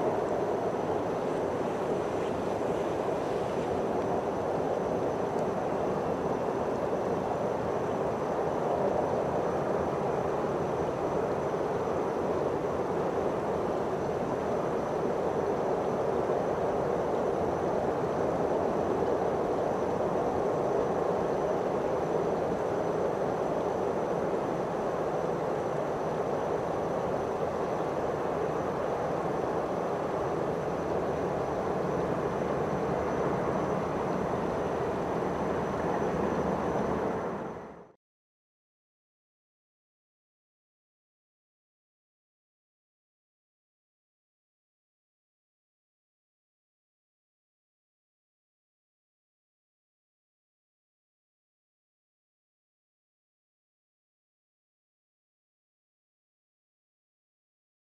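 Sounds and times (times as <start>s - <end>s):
distant train rumble: 0.0s - 37.8s
faint high-pitched whine: 0.0s - 38.0s.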